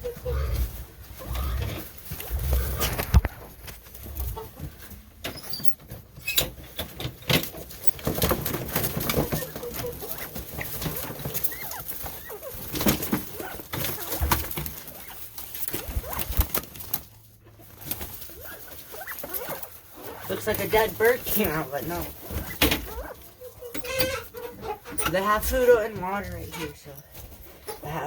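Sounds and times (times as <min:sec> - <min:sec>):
quail scratching and rustling: 0:00.0 - 0:28.0
quail chirps: 0:07.8 - 0:26.7.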